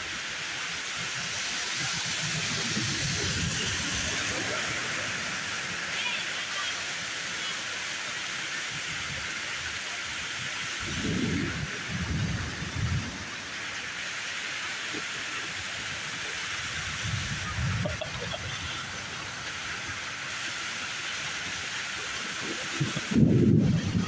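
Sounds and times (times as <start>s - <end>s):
heavy rain hissing: 0.0s - 24.0s
thunder rumbling: 10.8s - 13.4s, 16.7s - 19.2s.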